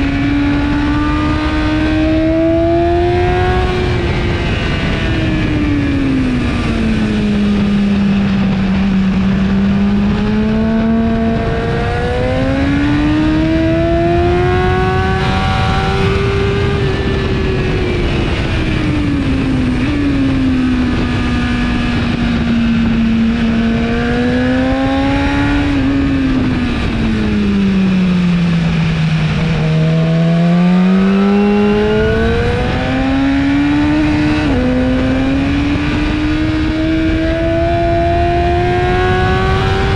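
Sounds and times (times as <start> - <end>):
motorcycle engine revving: 0.0 - 39.9
steady rush of noise: 25.2 - 39.9.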